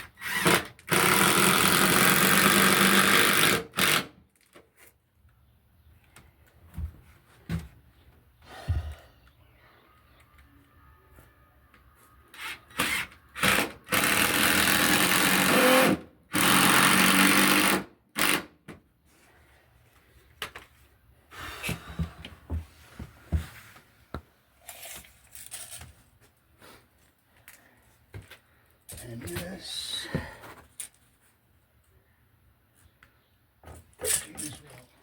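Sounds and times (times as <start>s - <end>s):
power drill running: 0.2s - 4.1s, 12.4s - 18.4s.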